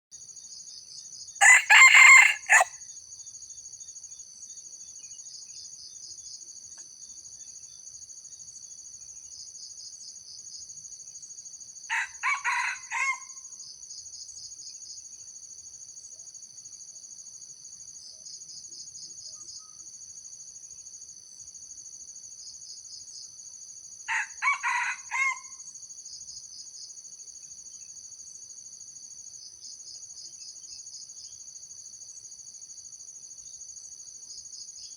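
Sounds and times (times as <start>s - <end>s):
insects chorus: 0.2s - 34.9s
rooster crowing: 1.4s - 2.7s, 11.9s - 13.4s, 24.1s - 25.6s.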